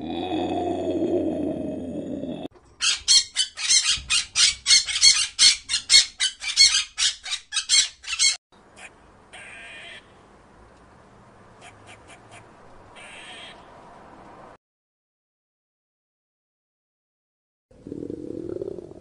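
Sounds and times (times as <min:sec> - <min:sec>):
parakeet squawking: 0:02.8 - 0:10.1, 0:11.6 - 0:13.6.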